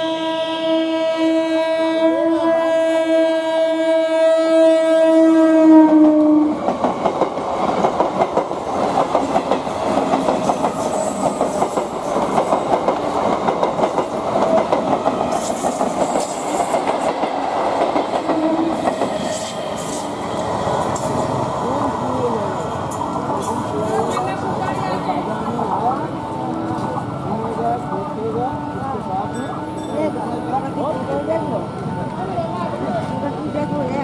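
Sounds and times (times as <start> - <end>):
train horn blast: 0.0 - 6.6
train wheels clattering on track: 6.1 - 21.9, 22.6 - 25.6.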